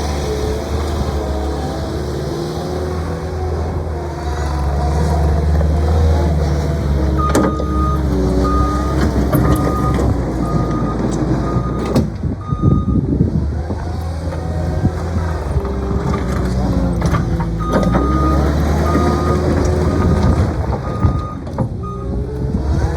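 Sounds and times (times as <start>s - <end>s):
diesel engine revving: 0.0s - 22.9s
backup alarm beeping: 7.2s - 13.0s.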